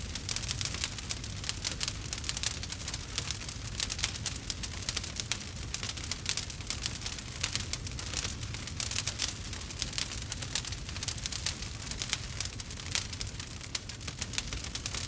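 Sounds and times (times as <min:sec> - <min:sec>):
campfire crackling and popping: 0:00.0 - 0:15.0
low rumble of flames: 0:00.0 - 0:15.0.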